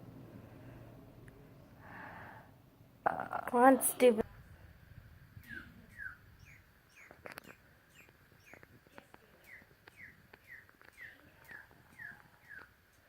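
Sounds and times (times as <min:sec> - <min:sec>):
faint bird chirps: 0:05.4 - 0:12.8.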